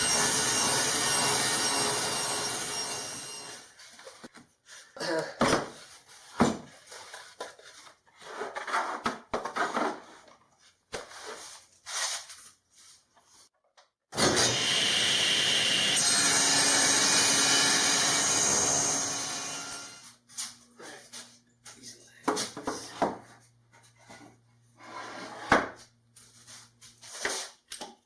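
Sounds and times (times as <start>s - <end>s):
saw cutting wood: 0.0s - 3.8s, 14.2s - 20.1s.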